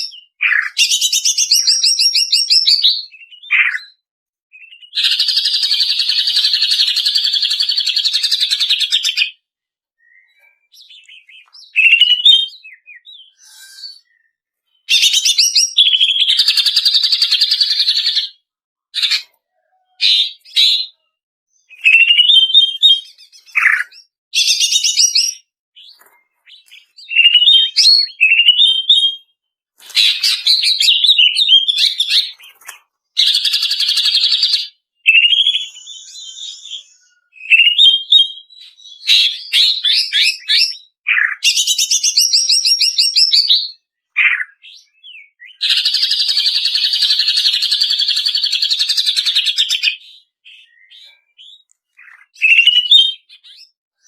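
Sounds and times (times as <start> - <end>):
bird chirps and trills: 10.0 - 18.2, 19.0 - 29.3, 29.9 - 53.8.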